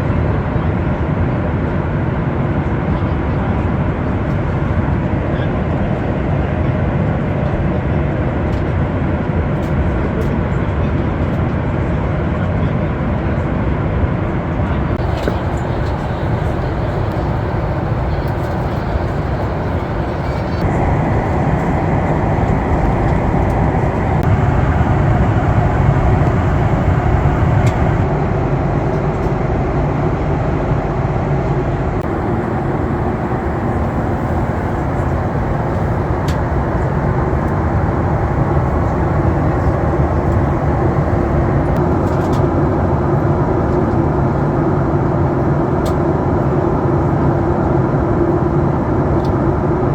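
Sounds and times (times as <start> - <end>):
airplane cabin engine rumble: 14.6 - 49.9.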